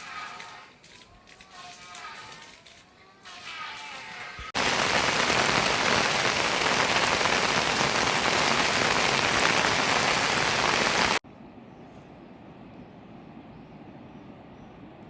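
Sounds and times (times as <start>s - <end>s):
heavy rain falling: 4.6s - 11.2s.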